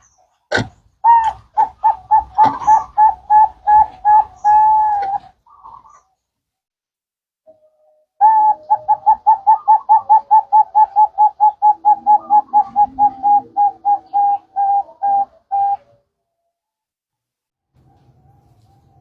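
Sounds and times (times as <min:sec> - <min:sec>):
dove cooing: 0:00.0 - 0:06.1, 0:07.6 - 0:16.1.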